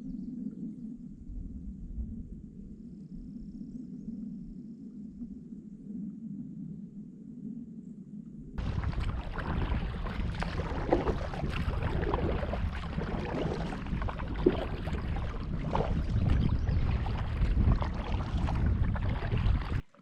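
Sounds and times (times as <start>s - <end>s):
wind rumbling on microphone: 0.0s - 20.0s
paddle splashes: 8.6s - 20.0s.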